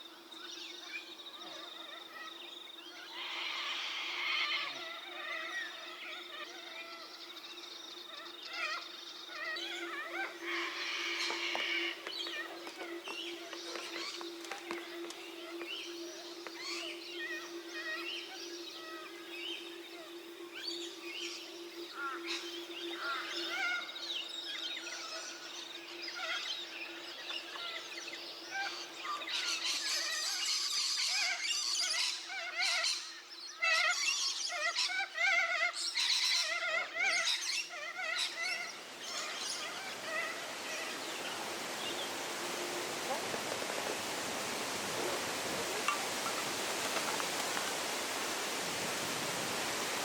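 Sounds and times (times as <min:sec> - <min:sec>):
wild birds calling and chirping: 0:00.2 - 0:50.0
steady low hum: 0:09.6 - 0:28.5.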